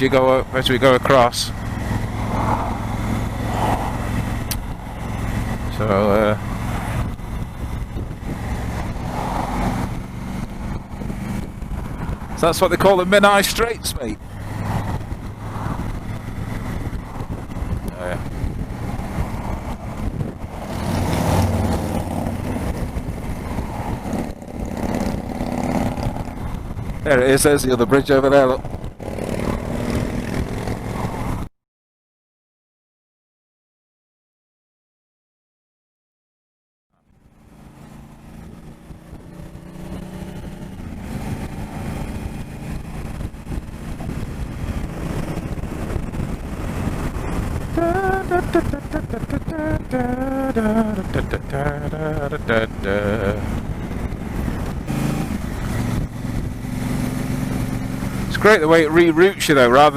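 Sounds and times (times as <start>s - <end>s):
motorcycle engine running: 0.0s - 27.5s, 37.1s - 59.9s
wind and road noise: 0.0s - 31.5s, 37.0s - 59.9s.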